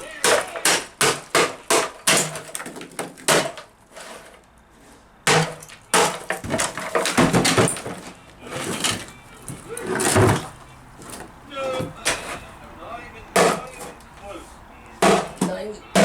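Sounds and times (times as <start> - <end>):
wooden cabinet being smashed: 0.0 - 3.7, 5.2 - 12.4, 13.3 - 13.9, 15.0 - 16.0.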